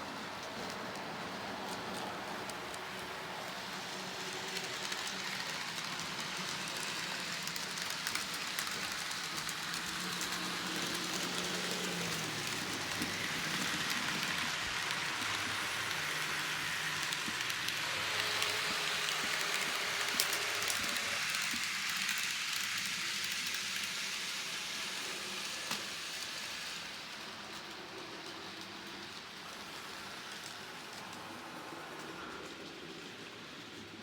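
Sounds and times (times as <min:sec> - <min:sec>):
small wheels rolling on track: 0:00.0 - 0:34.0.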